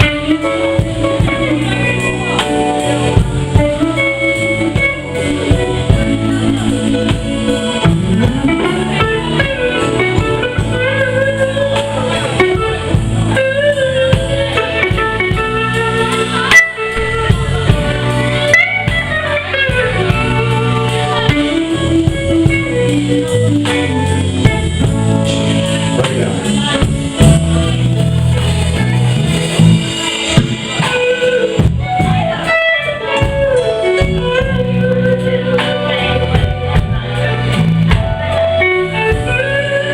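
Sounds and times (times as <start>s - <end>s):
lead guitar bending notes: 0.0s - 39.9s
live blues band playing: 0.0s - 39.9s
sharp drum hit: 26.0s - 32.4s.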